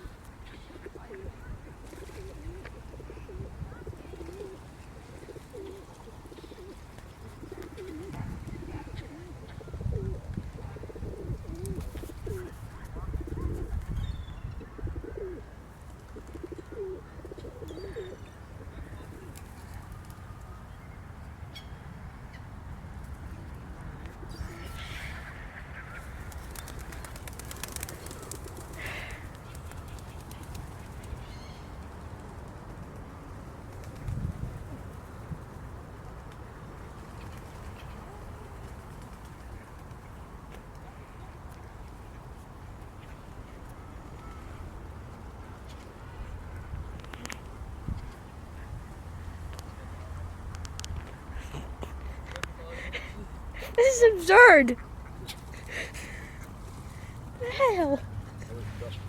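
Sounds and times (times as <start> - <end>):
flock of birds cooing: 0.0 - 20.8, 23.1 - 32.8, 33.5 - 46.3.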